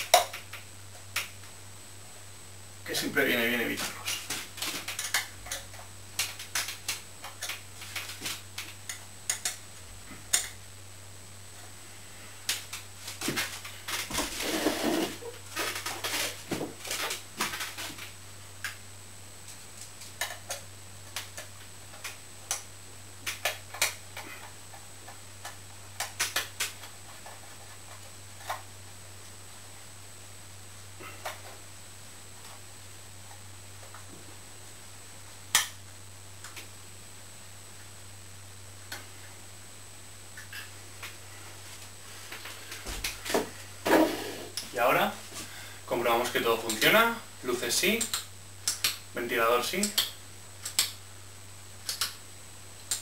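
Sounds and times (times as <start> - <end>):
faint low hum: 0.0 - 53.0
hard objects clicking and tapping: 4.1 - 9.6.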